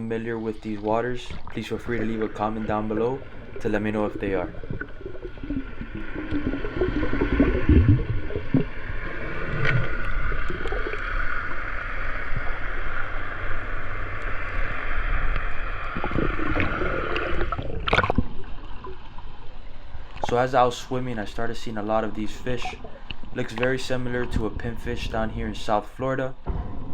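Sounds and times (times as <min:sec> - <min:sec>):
muffled underwater gurgling: 0:00.0 - 0:11.4, 0:20.2 - 0:26.6
low rumble: 0:00.0 - 0:20.1, 0:26.3 - 0:26.9.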